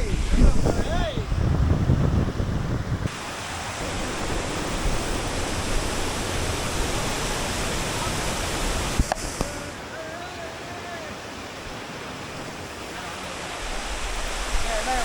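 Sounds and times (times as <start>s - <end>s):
waterfall rushing: 3.1s - 15.0s.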